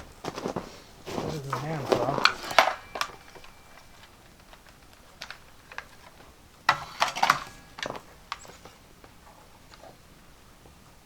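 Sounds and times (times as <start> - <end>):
clattering: 0.0 - 9.9.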